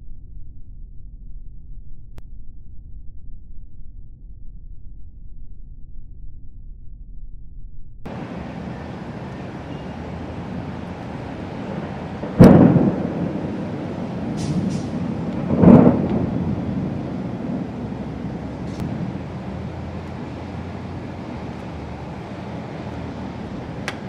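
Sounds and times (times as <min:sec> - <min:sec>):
storm hiss: 0:08.1 - 0:24.0
thunder crack and rumble: 0:08.1 - 0:24.0.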